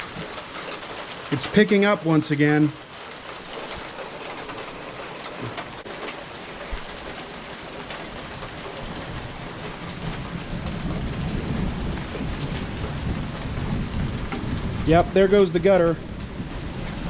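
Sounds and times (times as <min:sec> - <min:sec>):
heavy rain pattering: 0:00.0 - 0:17.0
low rumble of thunder: 0:07.7 - 0:17.0.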